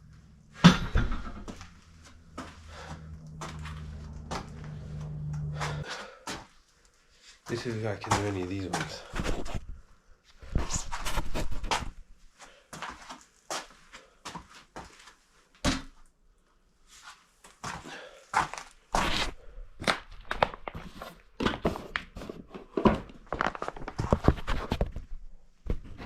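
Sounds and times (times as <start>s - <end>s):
footsteps thudding and scuffing: 7.5s - 9.8s, 10.4s - 12.2s, 12.8s - 16.0s, 17.6s - 26.0s.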